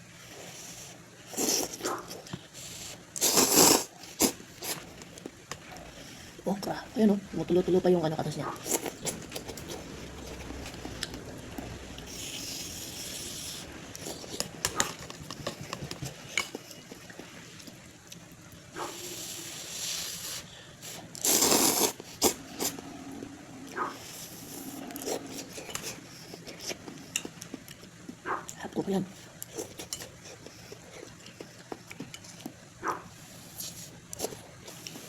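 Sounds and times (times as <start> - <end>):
noodles being slurped and chewed: 0.3 - 6.8, 8.5 - 11.3, 18.9 - 22.9, 23.7 - 28.2, 29.2 - 32.6, 33.2 - 35.0.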